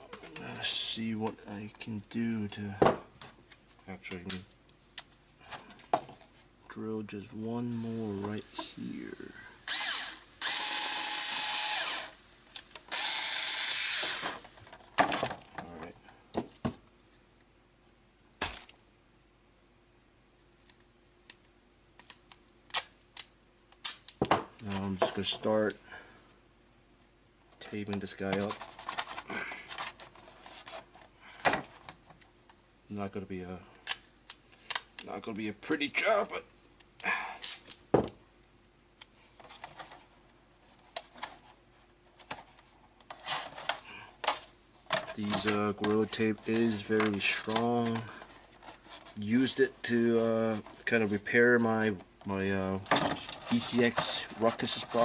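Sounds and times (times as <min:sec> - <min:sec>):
tape rustle: 0:27.6 - 0:32.3, 0:38.5 - 0:51.9, 0:52.7 - 0:55.0.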